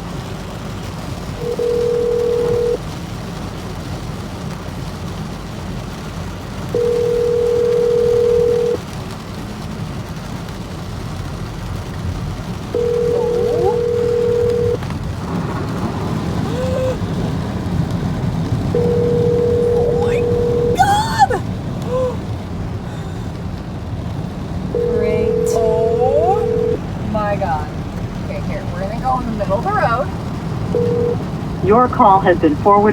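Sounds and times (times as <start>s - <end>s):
low rumble of car driving: 0.0s - 32.9s
telephone ringback tone: 1.4s - 2.8s, 6.8s - 8.8s, 12.8s - 14.8s, 18.7s - 20.8s, 24.8s - 26.8s, 30.7s - 31.2s.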